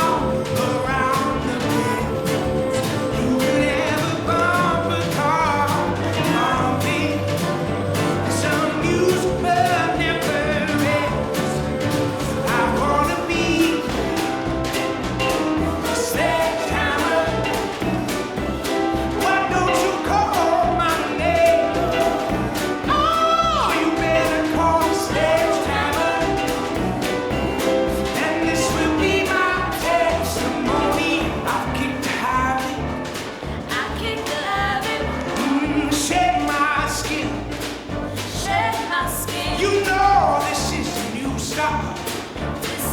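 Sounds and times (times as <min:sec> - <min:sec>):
song with vocal and beat: 0:00.0 - 0:42.9.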